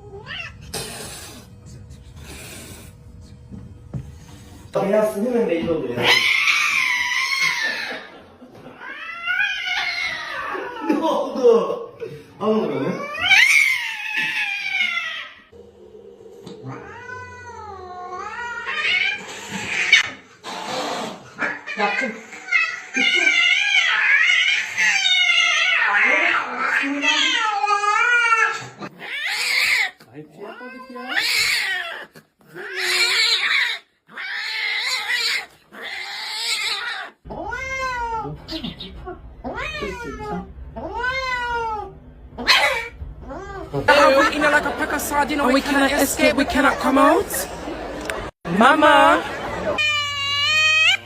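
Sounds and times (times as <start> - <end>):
cat yowling: 6.0 - 8.0, 8.8 - 10.9, 12.9 - 15.5, 21.4 - 30.0, 30.6 - 43.7, 49.8 - 51.0.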